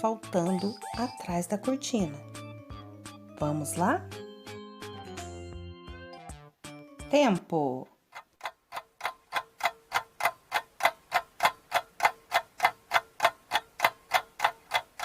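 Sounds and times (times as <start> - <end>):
clock ticking: 0.4 - 2.2, 8.0 - 15.0.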